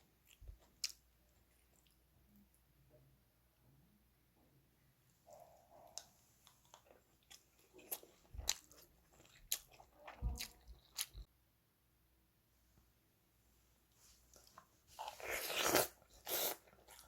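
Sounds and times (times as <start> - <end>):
person chewing and crunching: 0.0 - 2.0, 5.3 - 11.3, 14.3 - 17.0.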